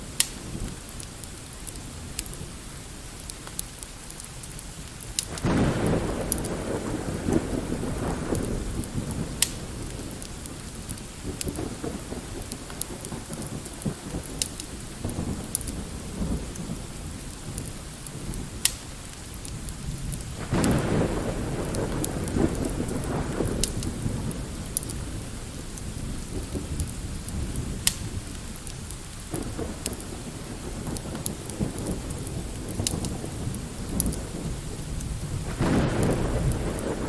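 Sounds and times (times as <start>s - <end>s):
light rain: 0.0s - 37.0s
wood fire crackling: 0.0s - 37.0s
rolling thunder: 5.3s - 18.7s, 19.5s - 37.0s.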